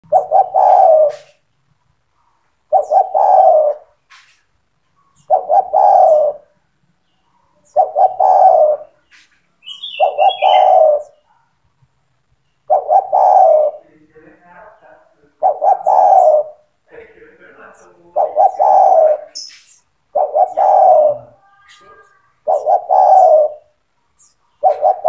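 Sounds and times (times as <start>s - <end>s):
dove cooing: 0.0s - 1.4s, 2.7s - 4.0s, 5.1s - 6.6s, 7.6s - 11.4s, 12.7s - 13.9s, 15.3s - 16.8s, 17.7s - 19.5s, 20.1s - 25.0s
small bird chirp: 2.2s - 11.6s, 17.8s - 25.0s.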